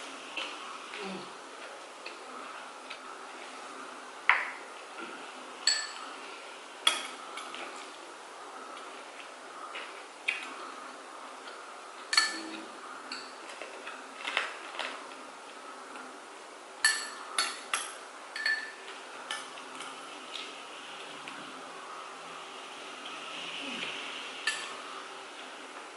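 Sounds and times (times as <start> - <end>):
cutlery clinking on plates: 5.6 - 6.1, 12.1 - 13.6, 16.8 - 20.0, 24.5 - 24.8.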